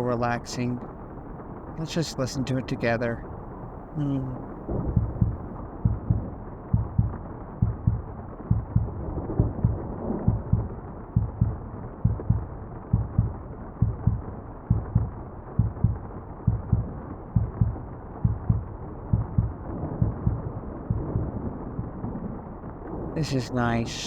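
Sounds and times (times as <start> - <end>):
muffled falling rain: 0.0 - 24.0
heartbeat double thumps: 2.8 - 22.0.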